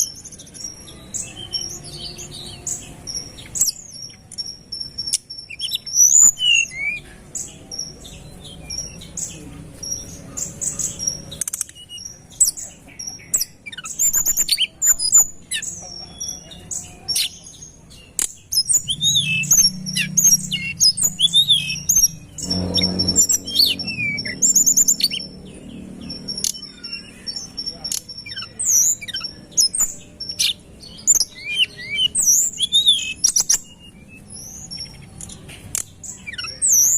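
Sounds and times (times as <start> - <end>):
bird chirping and whistling: 0.0 - 9.3, 10.7 - 16.8, 18.5 - 35.0
faint low drone: 18.7 - 26.4.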